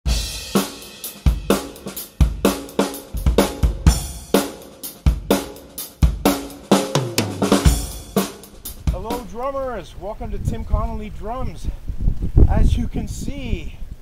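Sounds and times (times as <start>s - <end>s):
drum kit groove: 0.0s - 9.6s
cymbals: 0.1s - 9.3s
deep bass drum hits: 5.1s - 9.2s.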